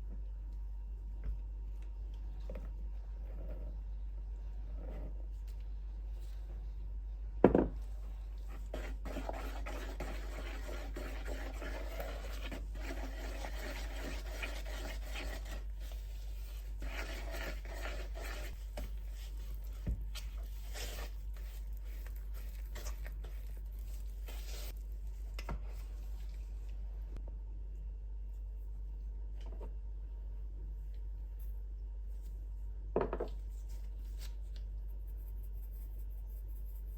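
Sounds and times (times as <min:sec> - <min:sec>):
steady low hum: 0:00.0 - 0:36.9
rubbing and scraping: 0:08.4 - 0:24.8.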